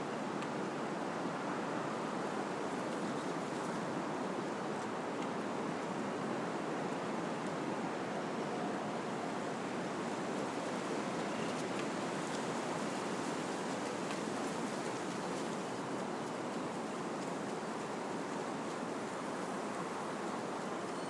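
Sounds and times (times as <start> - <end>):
wind rushing through leaves: 0.9 - 21.0
faint light ticks: 4.8 - 5.4.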